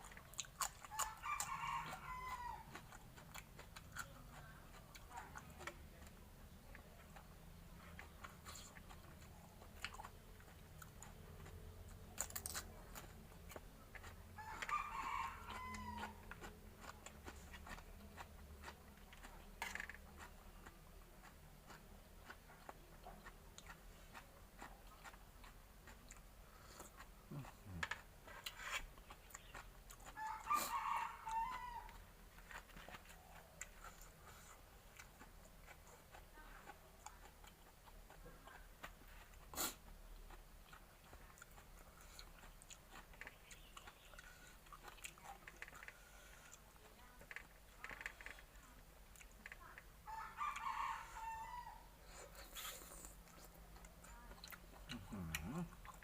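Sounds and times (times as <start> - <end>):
quiet chewing with crunches: 0.0 - 56.0
rooster crowing: 0.9 - 2.8, 14.4 - 16.2, 30.1 - 32.0, 50.1 - 51.9.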